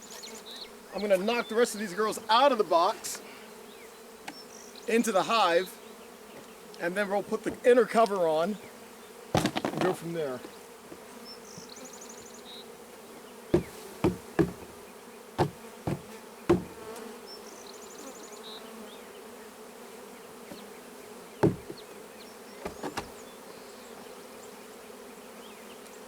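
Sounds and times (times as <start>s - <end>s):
honeybees buzzing: 0.0s - 26.0s
knocks on wooden box: 9.4s - 11.0s, 13.6s - 14.8s, 15.4s - 17.0s, 21.4s - 21.8s, 22.6s - 23.2s.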